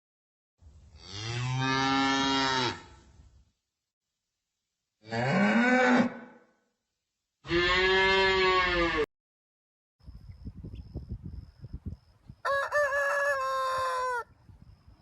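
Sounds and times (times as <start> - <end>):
cow mooing: 5.0 - 6.3, 7.4 - 9.1.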